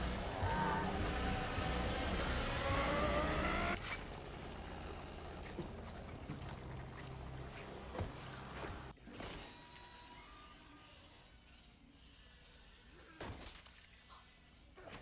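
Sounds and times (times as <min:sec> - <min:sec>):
engine revving: 0:00.0 - 0:03.8.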